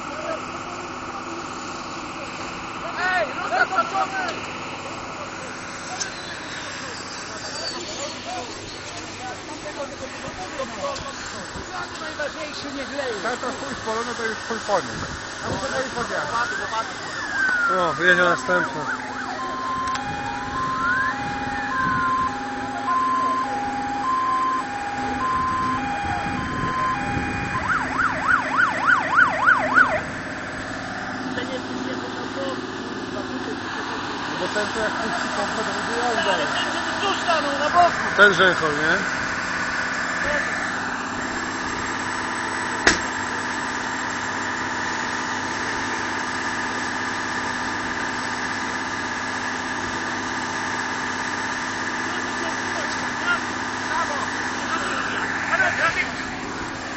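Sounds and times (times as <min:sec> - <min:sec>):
vehicle engine running: 0:00.0 - 0:56.9
fire engine siren: 0:15.6 - 0:31.2, 0:34.4 - 0:56.9
sharp knock: 0:42.8 - 0:43.1.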